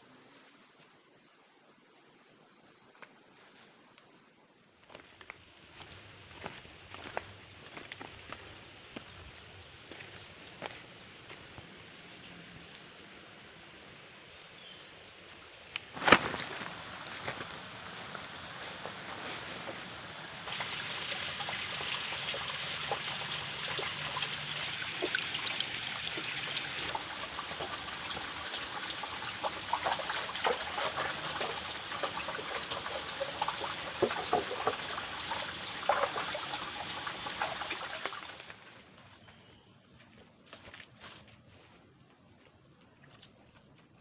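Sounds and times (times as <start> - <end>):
water trickling and splashing: 16.0 - 38.6.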